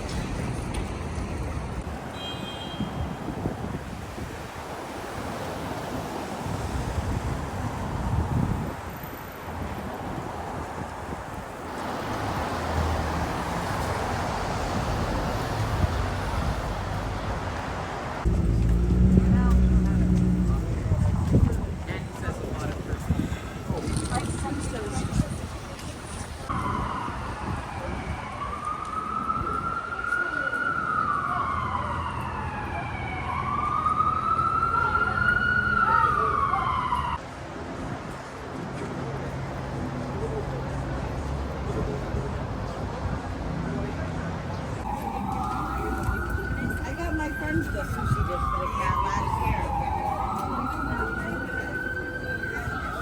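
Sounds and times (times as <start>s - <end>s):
city traffic rumble: 0.0s - 53.0s
tyres hissing on road: 11.6s - 26.5s
emergency siren wailing: 18.2s - 21.8s, 26.5s - 37.2s, 44.8s - 53.0s
low engine hum: 18.2s - 22.4s.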